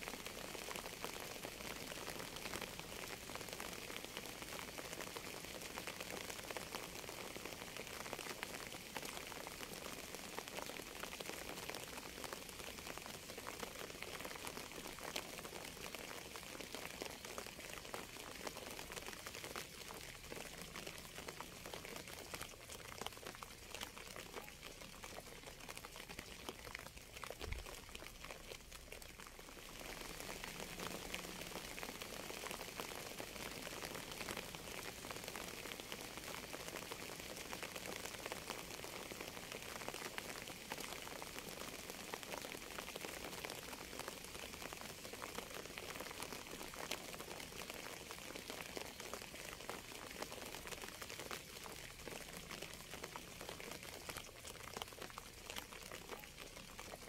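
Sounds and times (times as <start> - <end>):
raindrops ticking: 0.0 - 57.0
rain hissing: 27.4 - 37.0.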